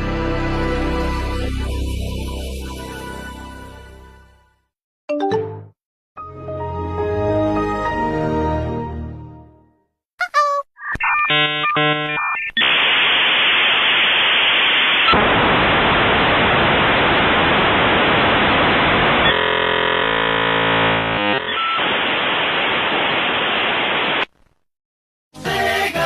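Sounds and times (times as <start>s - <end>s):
dial-up modem dialing tones: 10.8s - 12.8s, 21.4s - 21.9s
modem handshake hiss and screech: 10.8s - 15.2s, 18.5s - 24.2s.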